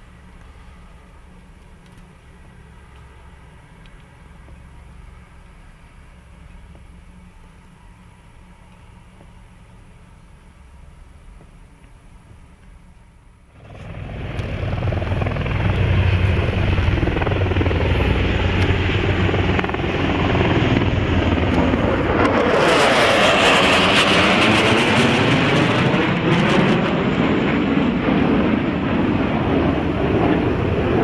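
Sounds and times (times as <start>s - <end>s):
military aircraft flying past: 13.5s - 31.0s.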